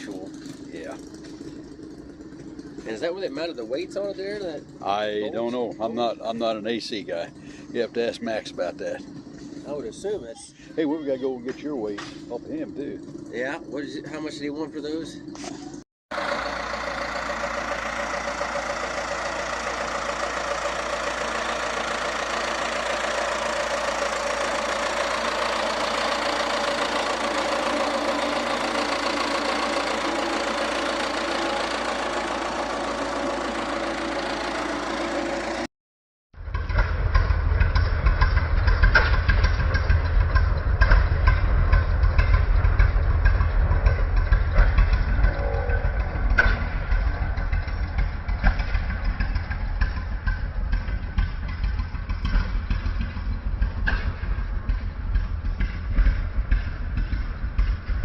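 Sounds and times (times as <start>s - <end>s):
tractor engine running: 0.0s - 35.7s, 36.4s - 58.0s
deep engine pulsing beat: 36.5s - 58.0s.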